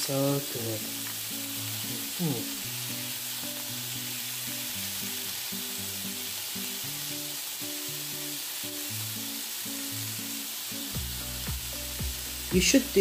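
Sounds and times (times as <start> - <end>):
meat sizzling on grill pan: 0.0 - 13.0
music with held low notes: 0.0 - 13.0.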